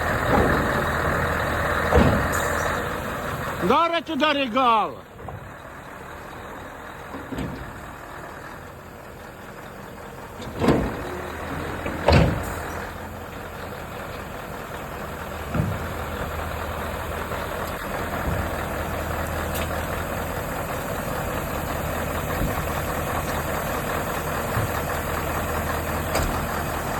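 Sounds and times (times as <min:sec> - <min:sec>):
diesel truck engine idling: 0:00.0 - 0:26.9
loud knocks: 0:00.2 - 0:02.8.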